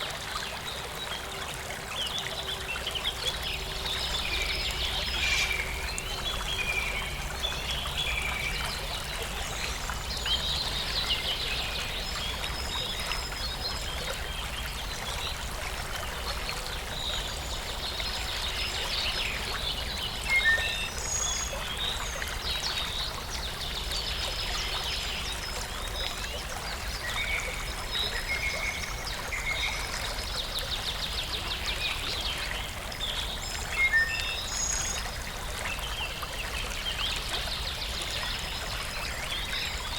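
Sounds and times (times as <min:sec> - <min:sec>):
stream water running: 0:00.0 - 0:39.9
small birds chirping and trilling: 0:02.0 - 0:14.8.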